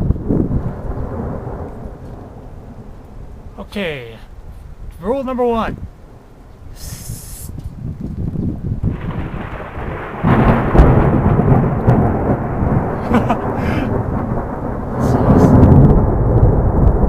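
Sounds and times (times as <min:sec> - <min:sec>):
thunder rumbling: 0:00.0 - 0:05.0, 0:07.8 - 0:17.0
rain falling: 0:00.0 - 0:17.0.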